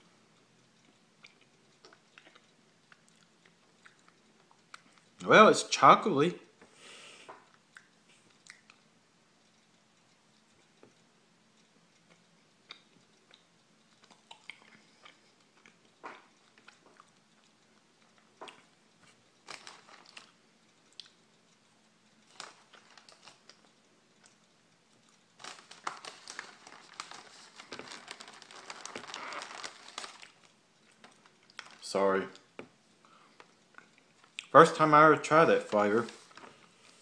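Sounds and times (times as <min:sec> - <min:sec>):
mouth chewing crunchy cookie: 0:00.4 - 0:05.3, 0:07.4 - 0:08.9, 0:11.9 - 0:31.8, 0:32.4 - 0:34.6.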